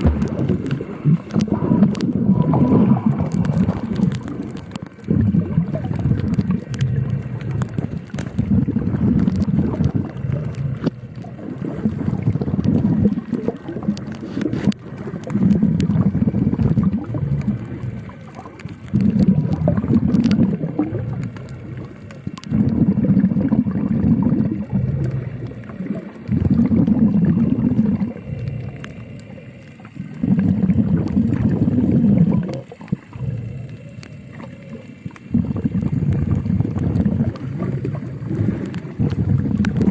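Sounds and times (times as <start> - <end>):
faint clicks: 0.0 - 39.9
underwater breathing: 0.0 - 39.9.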